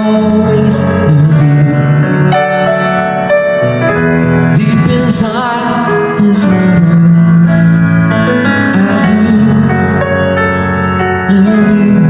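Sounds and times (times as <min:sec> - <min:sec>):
person singing: 0:00.0 - 0:02.5, 0:04.4 - 0:10.3, 0:11.0 - 0:12.0
piano chords: 0:00.0 - 0:12.0.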